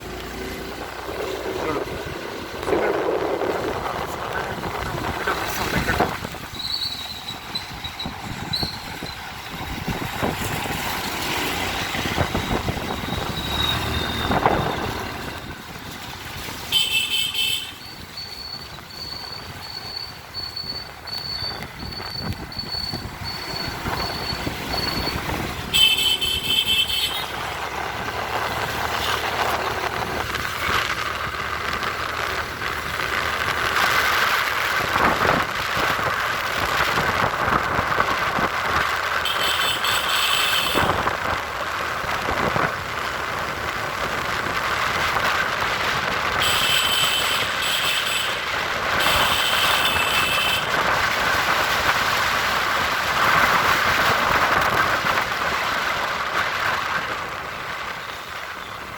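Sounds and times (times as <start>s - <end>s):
road traffic on wet roads: 0.0s - 58.9s
vehicle horns blasts: 16.7s - 17.8s, 25.6s - 27.4s, 39.2s - 41.0s, 46.4s - 50.8s.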